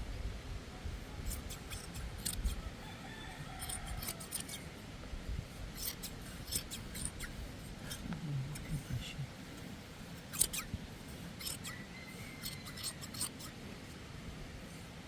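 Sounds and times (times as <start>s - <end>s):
hand shears snipping: 1.3s - 2.6s, 3.6s - 4.6s, 5.8s - 8.7s, 10.2s - 10.7s, 11.4s - 11.8s, 12.4s - 13.5s.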